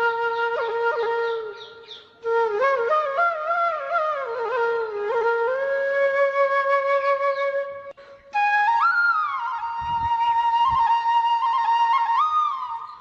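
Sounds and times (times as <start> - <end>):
flute music: 0.0 - 13.0.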